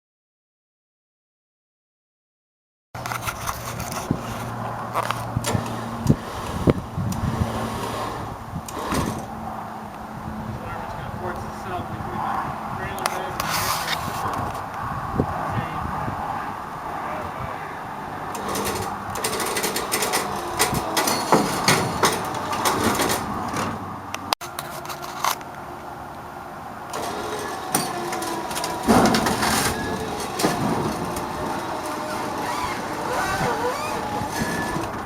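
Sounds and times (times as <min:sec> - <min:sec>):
metallic knocks and clanks: 0:18.4 - 0:23.8, 0:27.0 - 0:33.2.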